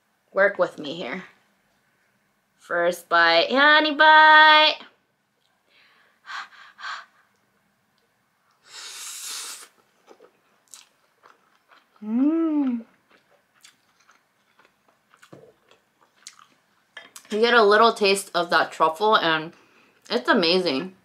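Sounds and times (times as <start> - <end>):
breathy hiss: 5.7 - 7.3, 8.6 - 9.8
person humming mmm: 12.0 - 13.0
wet chewing mouth clicks: 12.6 - 17.3.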